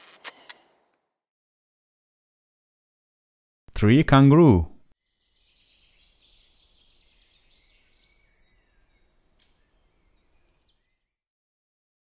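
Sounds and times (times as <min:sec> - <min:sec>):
small birds chirping and twittering: 0:05.0 - 0:11.2.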